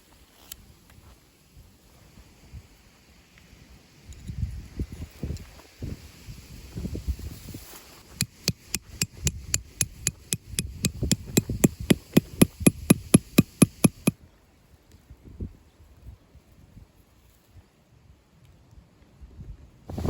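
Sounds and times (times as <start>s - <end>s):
hammer strikes: 8.2s - 14.1s.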